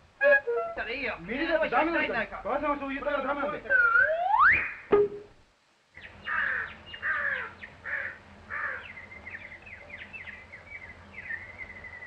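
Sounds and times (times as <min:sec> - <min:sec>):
crow-like caws: 0:06.3 - 0:08.9.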